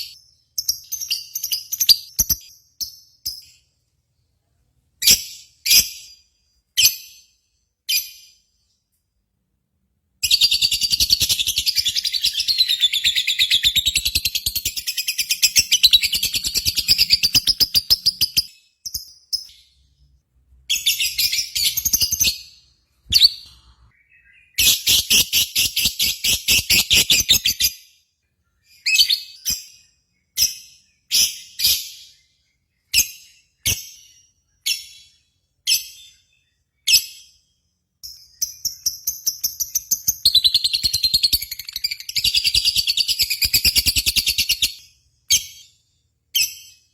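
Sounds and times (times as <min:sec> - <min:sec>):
bird sharp chirps: 0:10.2 - 0:46.9.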